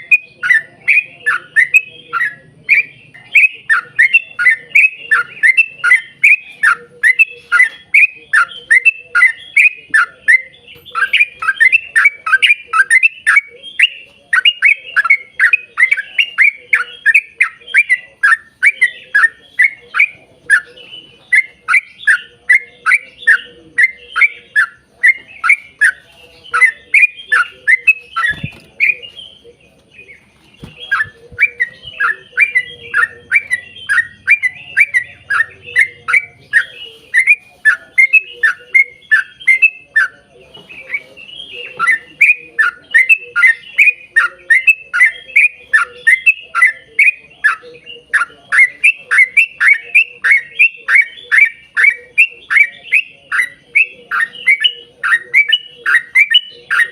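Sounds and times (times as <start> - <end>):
bird singing falling notes: 0.0 - 56.9.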